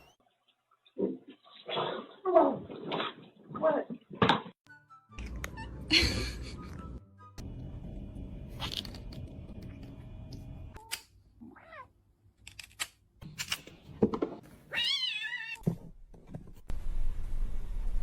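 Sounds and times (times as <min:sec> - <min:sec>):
cat meowing: 0:14.7 - 0:15.6.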